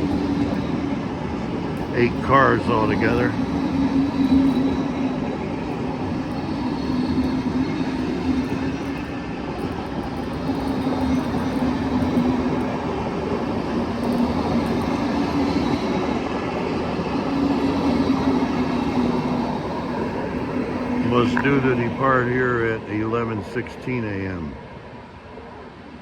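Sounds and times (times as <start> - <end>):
low drone: 0.0 - 9.1, 17.2 - 24.4
electric train humming: 0.0 - 26.0.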